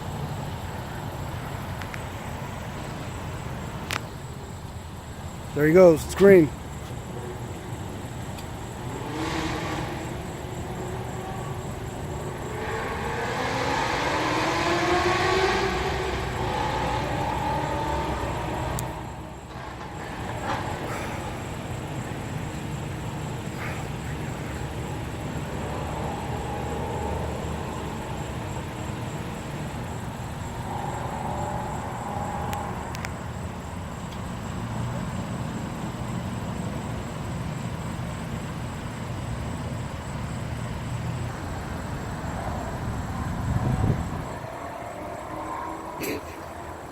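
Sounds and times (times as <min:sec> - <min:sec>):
traffic noise: 0:00.0 - 0:46.9
car engine accelerating hard: 0:07.3 - 0:38.9.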